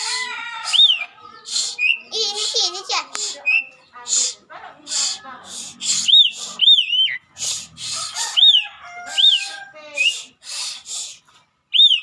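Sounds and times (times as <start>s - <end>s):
harsh rasping bird calls: 0.0s - 12.0s
starling whistled calls: 0.6s - 2.1s, 5.0s - 10.8s, 11.7s - 12.0s.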